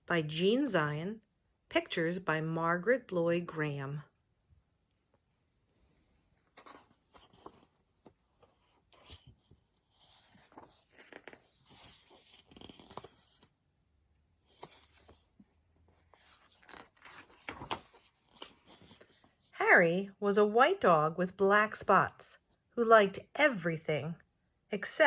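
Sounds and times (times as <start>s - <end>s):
paper pages turning: 6.4s - 13.6s, 14.4s - 19.5s.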